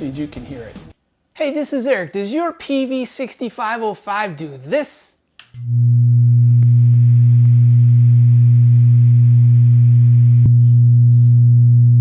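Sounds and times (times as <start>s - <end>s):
guitar amp humming: 5.6s - 12.0s.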